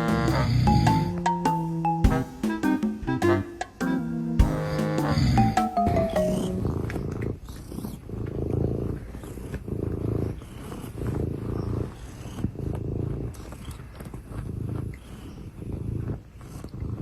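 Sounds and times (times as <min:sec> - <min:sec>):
cat purring: 0:00.0 - 0:01.4, 0:04.5 - 0:17.0.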